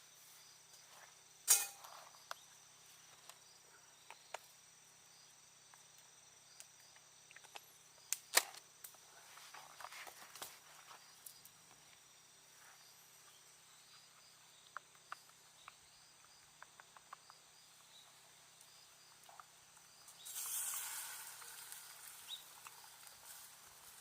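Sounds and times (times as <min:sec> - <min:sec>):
campfire crackling and popping: 0:19.2 - 0:24.0
short hiss: 0:20.2 - 0:23.5.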